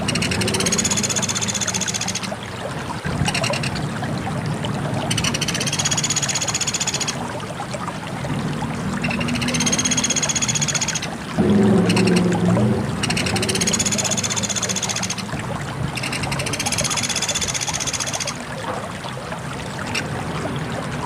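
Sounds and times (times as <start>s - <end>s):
bird calling in pulsed trills: 0.0s - 2.4s, 3.2s - 3.8s, 5.1s - 7.2s, 9.0s - 11.2s, 13.0s - 15.3s, 16.0s - 18.4s
steady low noise: 11.3s - 14.4s.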